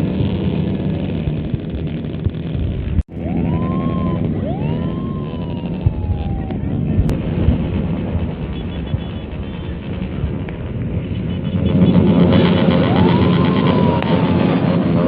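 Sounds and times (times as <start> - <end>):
motorcycles revving: 0.0 - 15.0
siren whoops: 3.1 - 7.2, 12.4 - 15.0.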